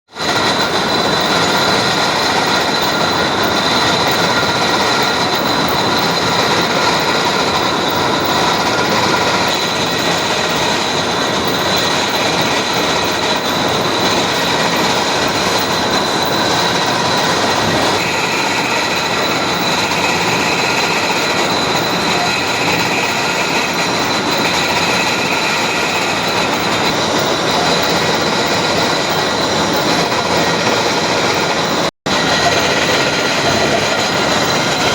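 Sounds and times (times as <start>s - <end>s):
metal boring machine running: 0.1s - 34.9s
high-pitched whine: 0.2s - 34.9s.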